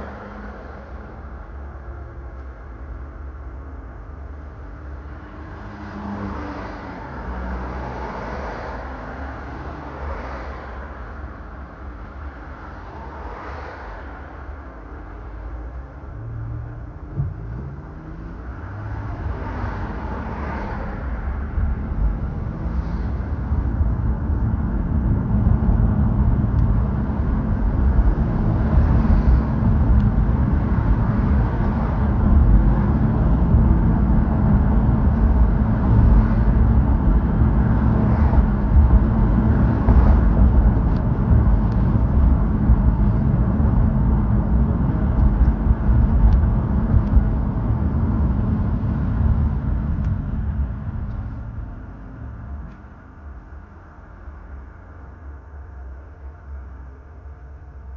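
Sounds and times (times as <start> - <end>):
car engine and road noise: 0.0 - 57.9.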